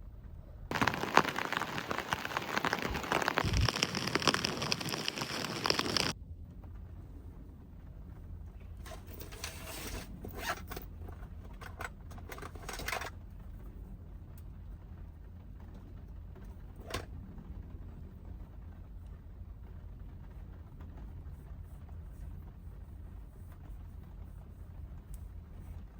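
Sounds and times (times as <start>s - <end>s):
zipper being pulled: 0.7s - 6.1s.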